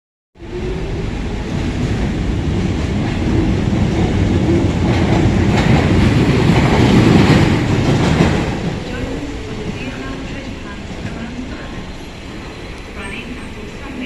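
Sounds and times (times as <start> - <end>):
train running on track: 0.4 - 14.0.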